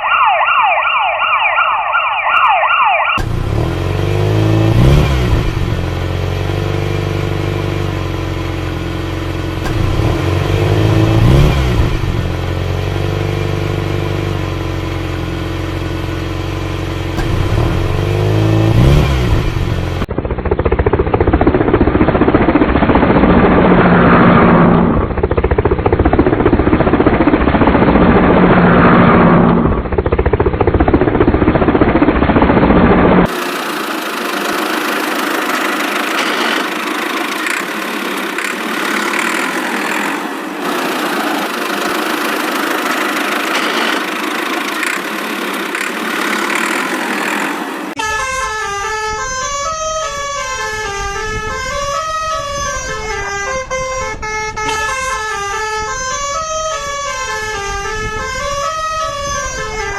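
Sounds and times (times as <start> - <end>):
rough noisy engine: 3.2 - 48.1
engine running and revving: 3.2 - 48.2, 54.6 - 59.9.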